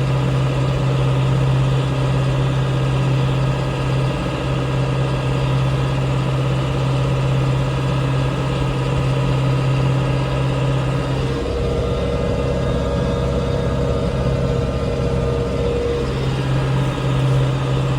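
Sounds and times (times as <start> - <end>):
tractor engine drone: 0.0 - 17.9
steady higher whine: 8.9 - 17.9.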